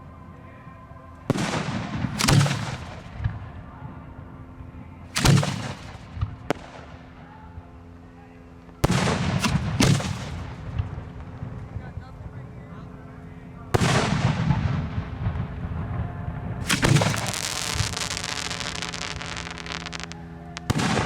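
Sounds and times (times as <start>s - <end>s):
fireworks booming: 16.6s - 21.0s.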